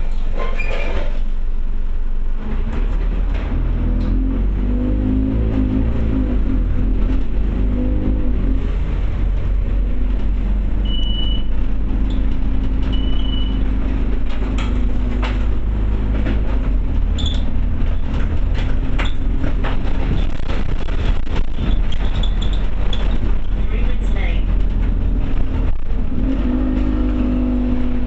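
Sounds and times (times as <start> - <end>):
bus engine and road drone: 0.0 - 28.0
short high beeps: 10.8 - 11.5, 12.9 - 13.6
clicks and rattles: 11.8 - 26.1.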